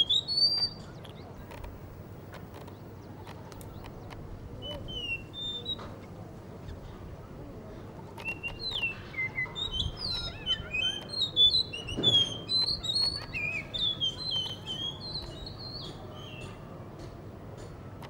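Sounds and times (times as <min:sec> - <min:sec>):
thrush singing whistled notes: 0:00.0 - 0:00.9, 0:02.8 - 0:05.9, 0:08.2 - 0:16.4.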